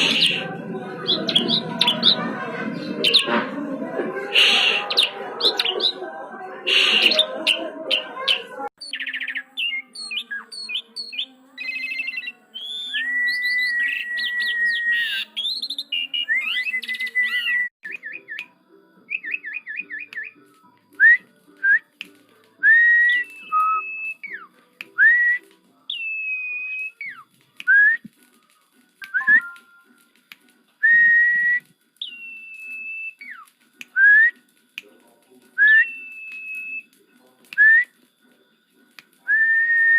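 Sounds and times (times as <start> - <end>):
starling chattering and whistling: 0.0 - 3.4, 4.4 - 6.0, 6.7 - 18.4, 19.1 - 20.5, 22.8 - 24.5, 25.9 - 27.3, 30.8 - 33.5, 35.6 - 37.0.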